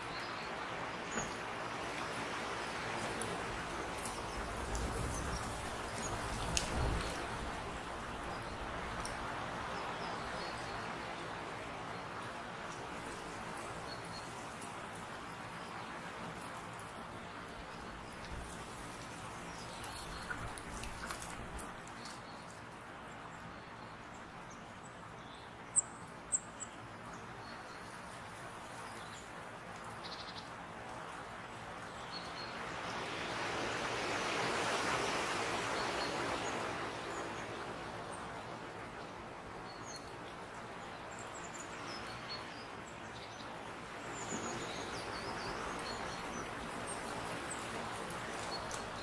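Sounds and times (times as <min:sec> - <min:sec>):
small birds chirping: 0:13.0 - 0:22.6, 0:35.0 - 0:49.0.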